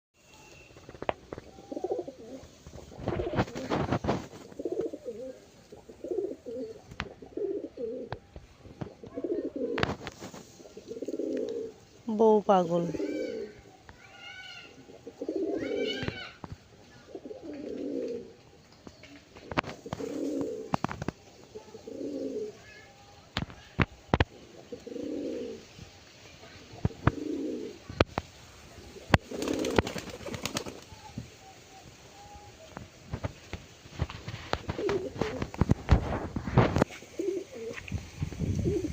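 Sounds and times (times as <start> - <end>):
pigeons cooing: 1.2 - 11.8, 12.7 - 13.7, 14.7 - 16.3, 16.9 - 18.4, 19.0 - 20.8, 21.4 - 22.6, 24.2 - 25.7, 26.6 - 28.0, 28.8 - 32.7, 34.0 - 38.9.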